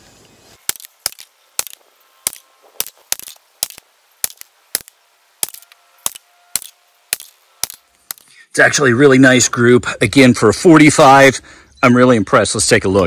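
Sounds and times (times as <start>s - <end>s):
gunshots single sharp cracks: 0.6s - 8.2s.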